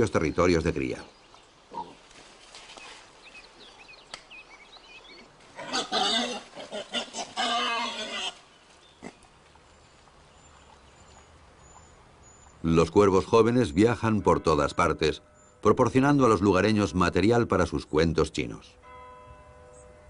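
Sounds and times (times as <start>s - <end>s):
wild boars squealing: 5.6s - 8.4s.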